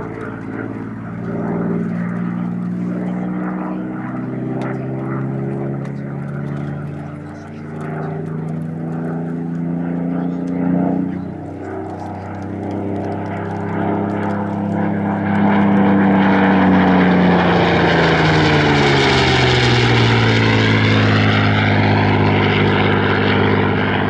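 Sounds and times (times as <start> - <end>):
propeller aircraft flying past: 0.0 - 24.0.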